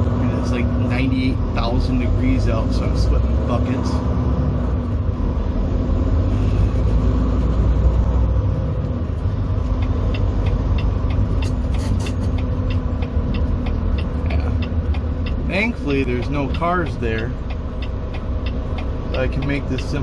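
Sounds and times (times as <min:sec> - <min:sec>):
diesel truck engine rumbling: 0:00.0 - 0:20.0
light regular ticking: 0:07.0 - 0:20.0.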